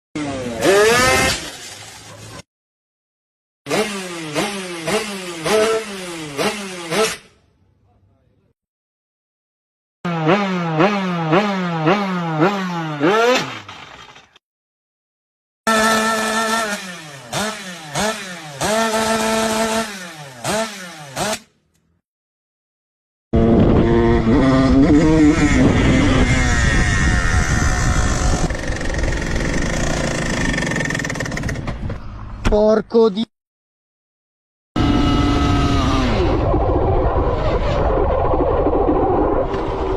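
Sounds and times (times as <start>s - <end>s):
two-stroke motorcycle engine revving: 0.2s - 2.2s, 3.7s - 7.3s, 10.1s - 13.8s, 15.7s - 21.5s, 23.4s - 31.6s, 34.8s - 36.5s.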